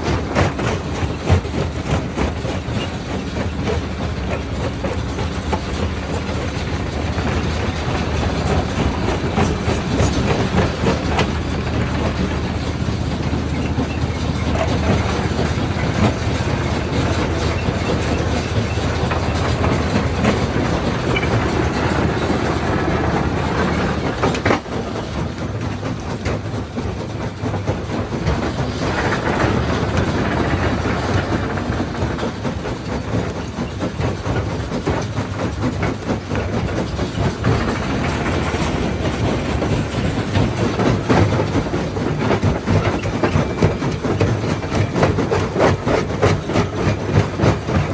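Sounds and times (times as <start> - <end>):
rock crusher droning: 0.0 - 25.4.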